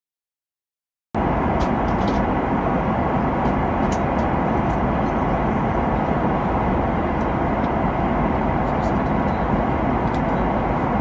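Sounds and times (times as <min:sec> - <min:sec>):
airliner cabin engine roar: 0:01.2 - 0:11.0.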